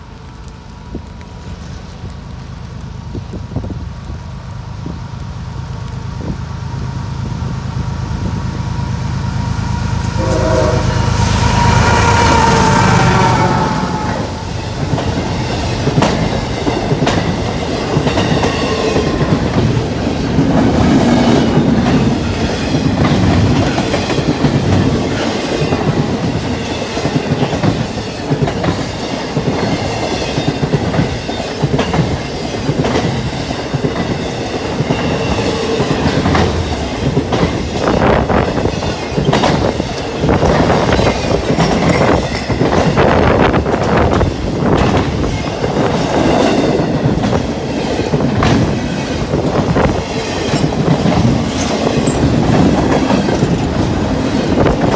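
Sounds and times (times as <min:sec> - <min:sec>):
train wheels rumbling on rail: 0:00.0 - 0:54.9
wheels clicking over rail joints: 0:14.0 - 0:54.9.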